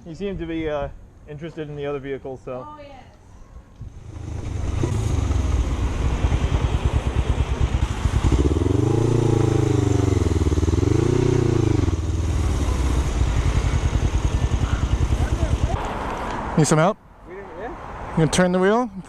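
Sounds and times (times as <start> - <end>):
motorcycle engine revving: 3.8 - 15.9.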